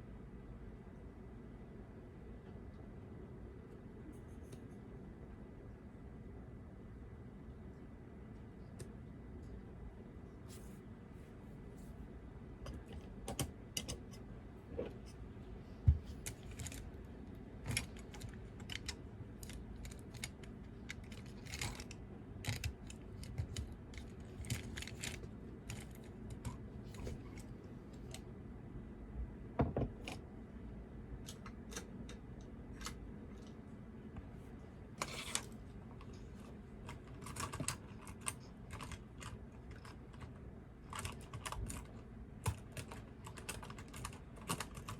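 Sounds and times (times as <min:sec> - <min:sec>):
typing on a keyboard: 0:17.6 - 0:26.6, 0:36.9 - 0:44.9.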